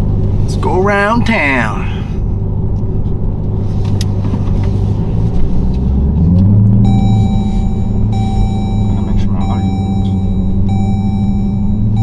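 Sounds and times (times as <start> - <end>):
car engine accelerating: 0.0 - 12.0
steady high tone: 6.8 - 12.0.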